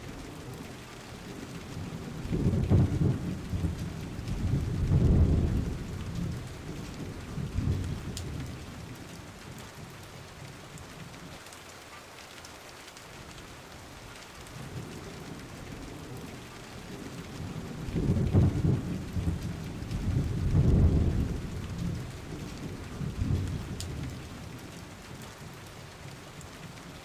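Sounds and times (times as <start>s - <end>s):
steady rain: 0.0s - 27.0s
rolling thunder: 1.8s - 8.9s, 16.8s - 24.8s.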